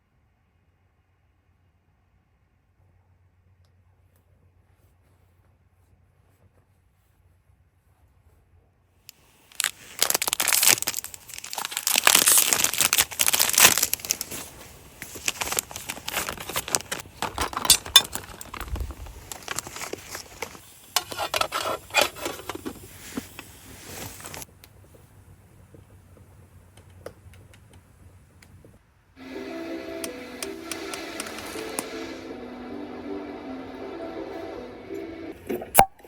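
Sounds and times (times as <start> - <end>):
crinkling and rustling handling: 4.0 - 25.0.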